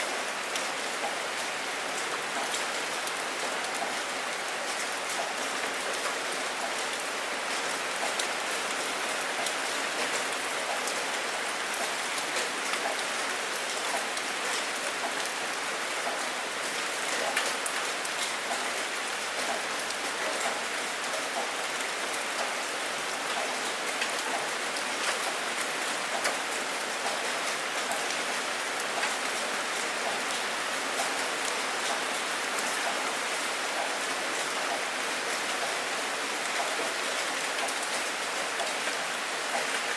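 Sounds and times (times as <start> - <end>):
rain falling: 0.0 - 39.9
raindrops ticking on a surface: 0.1 - 39.9.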